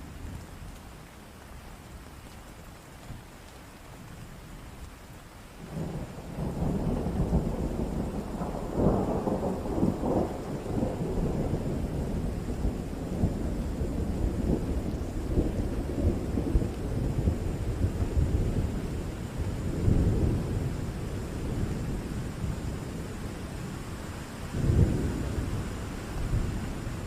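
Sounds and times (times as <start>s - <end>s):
steady rain: 0.0s - 27.0s
rolling thunder: 5.6s - 27.0s.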